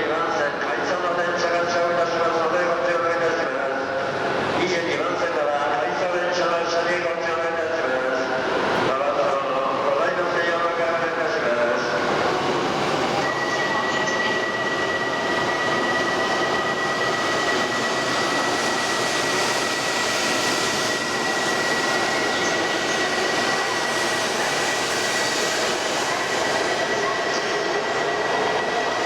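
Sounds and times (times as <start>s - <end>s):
train rushing rumble: 11.0s - 29.0s.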